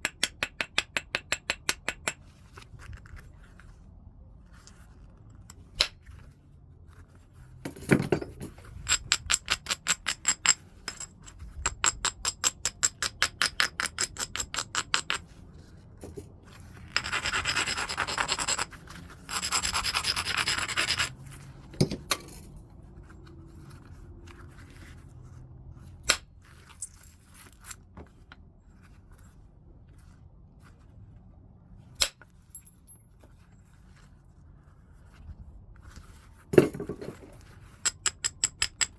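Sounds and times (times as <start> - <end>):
stone grinding: 8.7 - 15.2, 16.8 - 21.2
stone scraping strokes: 16.6 - 21.4.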